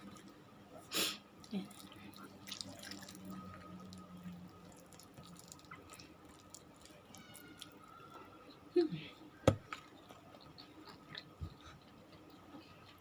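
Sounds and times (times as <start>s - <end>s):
low steady hum: 0.0s - 13.0s
mouth chewing food: 9.7s - 13.0s.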